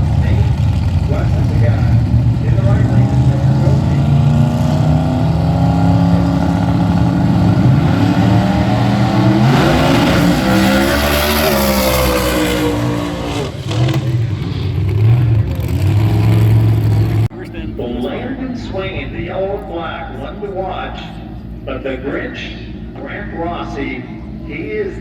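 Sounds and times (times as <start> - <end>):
engine revving past: 0.0 - 17.3
drag racing engines running: 0.0 - 25.0.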